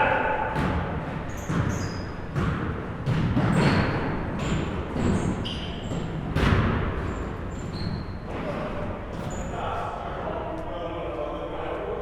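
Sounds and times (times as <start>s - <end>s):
basketballs bouncing on gym floor: 0.5s - 9.4s
sneakers squeaking on court: 0.6s - 9.5s.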